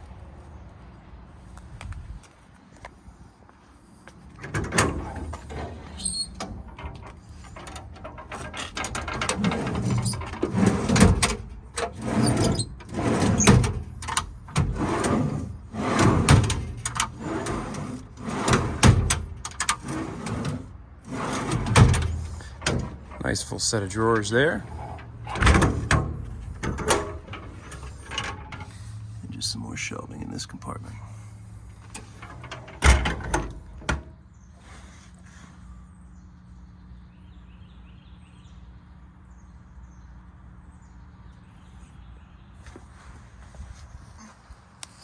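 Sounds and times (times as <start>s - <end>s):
metal compartment doors clanking: 4.3s - 29.0s, 31.0s - 34.3s
drawers sliding: 4.4s - 29.0s, 31.8s - 34.2s.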